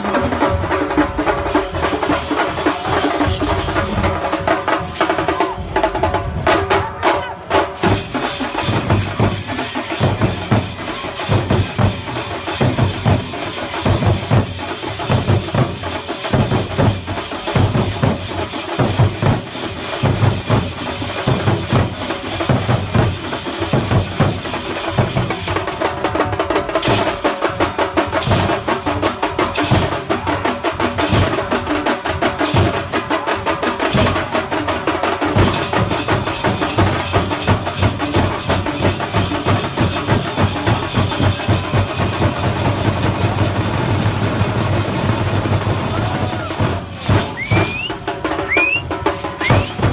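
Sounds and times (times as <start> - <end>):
deep bass drum strokes: 0.0 - 6.8
sharp accented drum strikes: 0.0 - 25.7, 26.5 - 30.3, 32.2 - 49.9
drum ensemble playing: 0.0 - 49.9.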